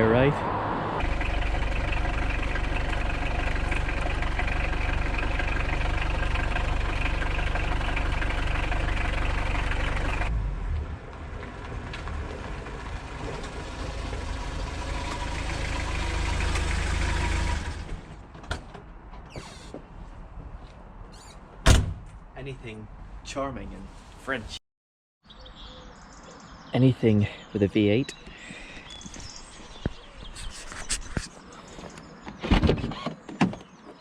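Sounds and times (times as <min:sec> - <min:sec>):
car engine running: 0:01.0 - 0:18.0.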